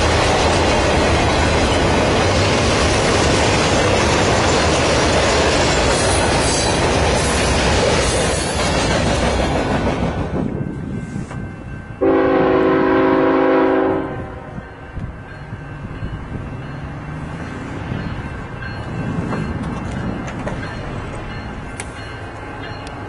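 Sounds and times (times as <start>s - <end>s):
passing train rumbling: 0.0s - 23.0s
locomotive air horn blast: 12.0s - 14.6s.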